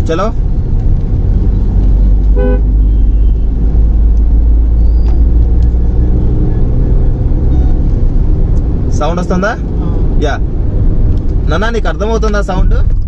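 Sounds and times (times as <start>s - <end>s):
car engine accelerating: 0.0s - 13.0s
car horn toot: 2.3s - 3.4s.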